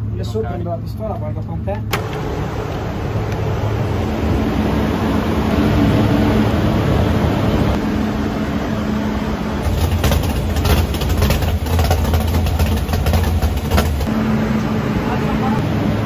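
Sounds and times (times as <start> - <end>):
car engine idling loudly: 8.8 - 15.7.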